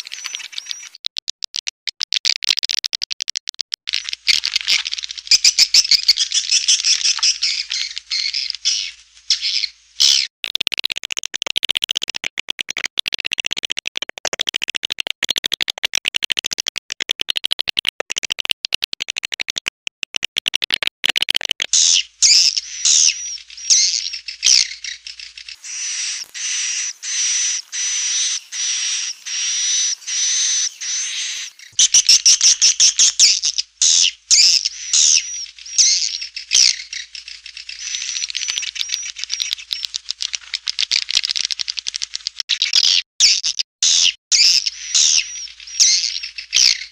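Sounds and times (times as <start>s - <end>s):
high-pitched bird calls: 0.0s - 1.5s, 3.9s - 10.3s, 21.7s - 46.9s
swiftlets twittering: 21.7s - 40.0s.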